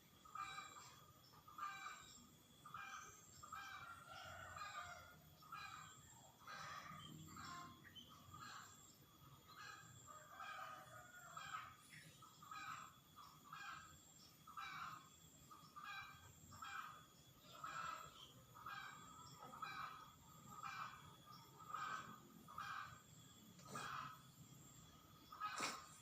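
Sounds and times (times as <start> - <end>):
faint bird calls: 11.9 - 26.0.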